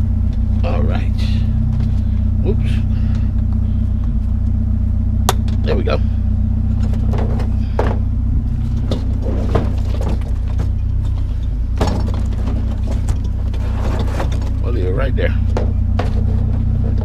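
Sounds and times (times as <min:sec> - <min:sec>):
vehicle engine idling: 0:00.0 - 0:17.0
scrap knocking and clattering: 0:06.8 - 0:14.7, 0:15.4 - 0:17.0.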